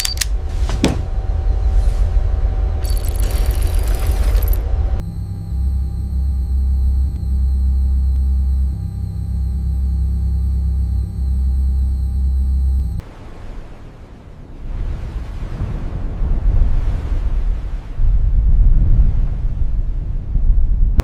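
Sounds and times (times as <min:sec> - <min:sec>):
deep machine hum: 0:00.0 - 0:13.0
thin high steady tones: 0:02.8 - 0:13.0.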